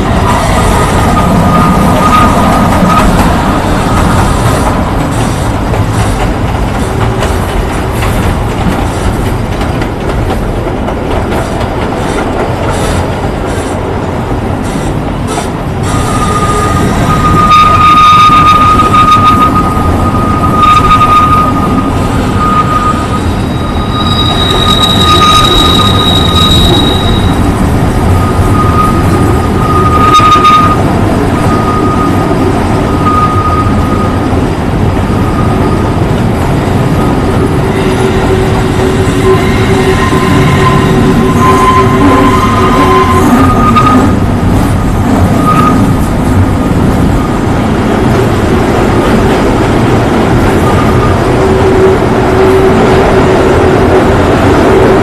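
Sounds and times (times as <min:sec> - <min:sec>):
train wheels rumbling and rattling: 0:00.0 - 0:55.0
steel wheel squeal: 0:00.2 - 0:05.3, 0:15.8 - 0:34.2, 0:37.6 - 0:44.2, 0:45.2 - 0:46.0.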